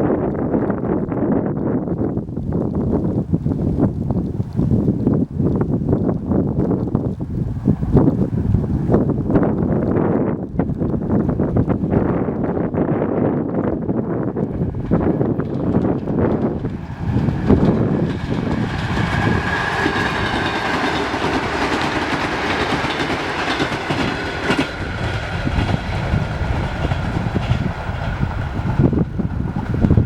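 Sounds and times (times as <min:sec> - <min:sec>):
electric train passing: 0:10.8 - 0:30.0.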